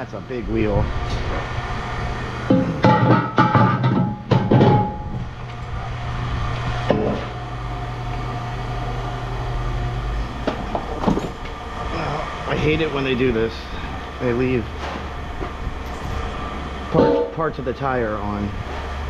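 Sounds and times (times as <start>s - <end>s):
steady low hum: 0.0s - 19.0s
metal wheel clanking and ringing: 2.5s - 5.2s, 15.8s - 17.6s.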